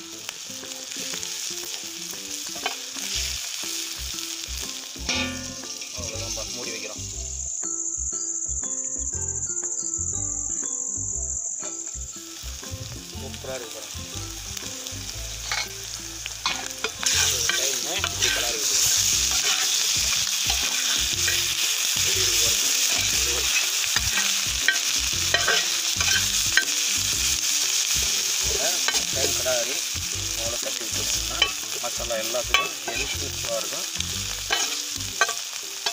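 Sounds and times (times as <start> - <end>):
liver sizzling in oil: 0.0 - 35.9
metal spatula scraping pan: 5.1 - 6.2, 15.4 - 15.8, 16.4 - 21.9, 22.7 - 26.9, 32.5 - 33.3, 34.5 - 35.9.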